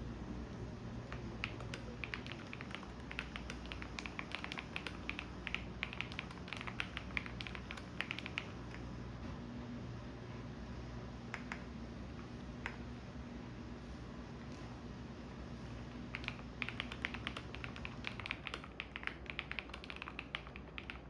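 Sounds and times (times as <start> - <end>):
washing machine humming: 0.0 - 21.0
typing on computer keyboard: 1.1 - 8.9, 16.1 - 21.0.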